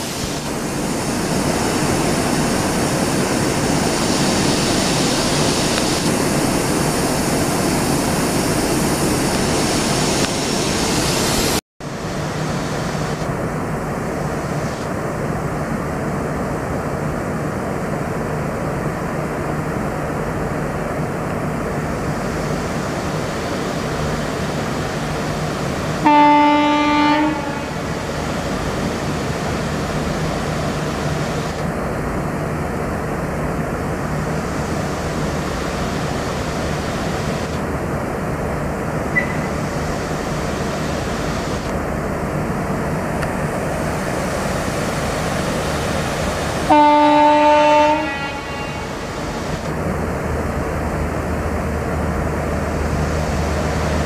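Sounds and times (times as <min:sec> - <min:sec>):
approaching train rumble: 0:00.0 - 0:54.0
train rushing past: 0:00.0 - 0:54.0
train horn blast: 0:26.0 - 0:27.9, 0:46.7 - 0:49.0.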